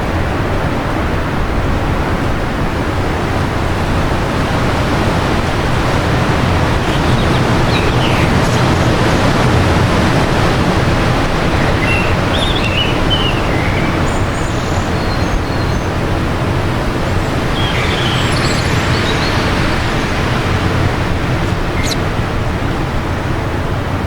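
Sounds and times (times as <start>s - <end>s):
strong wind blowing: 0.0s - 24.0s
faint bird chirps: 6.4s - 10.0s, 10.7s - 16.0s, 17.1s - 20.7s, 21.5s - 22.0s.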